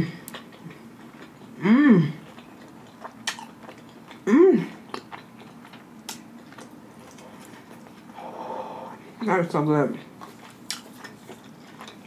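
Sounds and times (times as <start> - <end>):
close-up chewing: 0.0 - 8.2, 9.8 - 12.0
person humming mmm: 1.6 - 2.3, 4.2 - 4.8
wet mouth clicks: 2.3 - 4.2.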